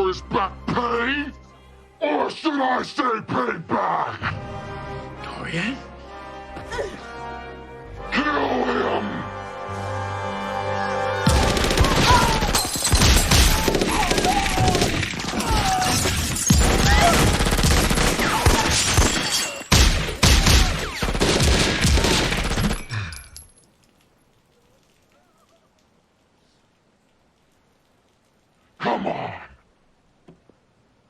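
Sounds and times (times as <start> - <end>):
film score music: 0.0 - 15.8
automatic gunfire: 11.3 - 15.4, 16.6 - 22.8.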